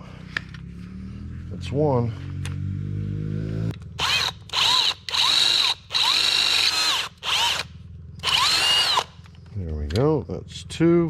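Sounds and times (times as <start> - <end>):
power drill whining: 4.0 - 9.4.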